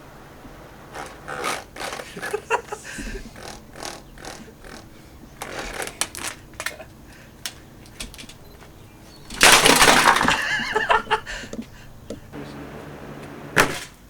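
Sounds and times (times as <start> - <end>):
plastic knocks and rattles: 1.0 - 12.3
loud crash: 9.3 - 11.1, 13.4 - 14.0.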